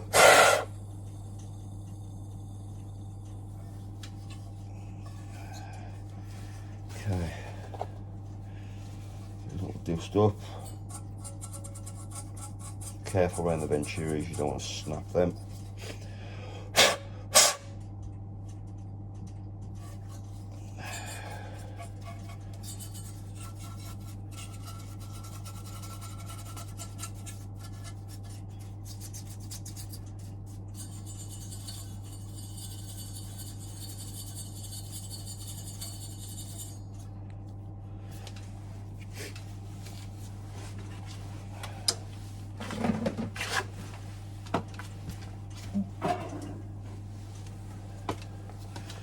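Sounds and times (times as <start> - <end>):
rubbing and scraping of parts: 0.0 - 0.7, 8.8 - 16.0, 19.8 - 37.1, 42.4 - 45.1
steady low hum: 0.0 - 49.0.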